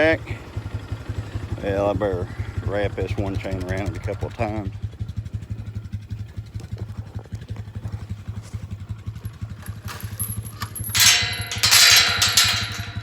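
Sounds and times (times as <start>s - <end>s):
four-wheeler engine idling: 0.0s - 13.0s
loud noisy clatter: 9.6s - 13.0s.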